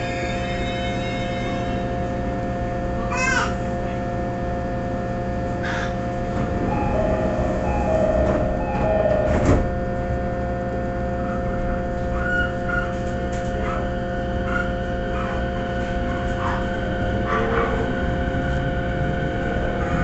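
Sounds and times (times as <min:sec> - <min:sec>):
electrical whine: 0:03.6 - 0:20.0
train wheels rumbling on track: 0:05.4 - 0:20.0.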